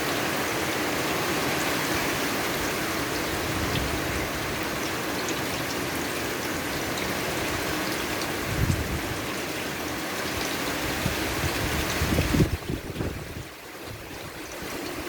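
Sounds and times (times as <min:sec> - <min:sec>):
steady rain hiss: 0:00.0 - 0:15.0
raindrops ticking: 0:13.5 - 0:15.0.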